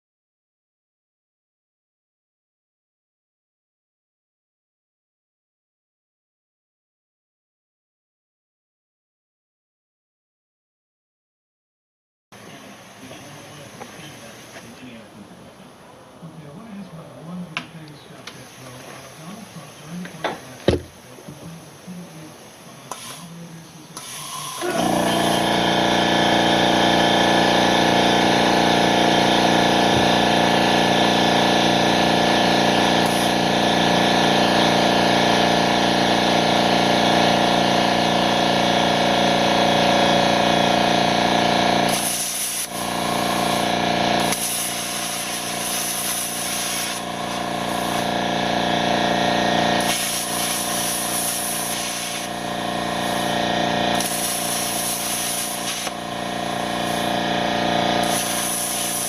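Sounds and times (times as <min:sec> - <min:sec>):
power tool running with hiss: 0:12.5 - 0:14.8, 0:22.4 - 0:59.0.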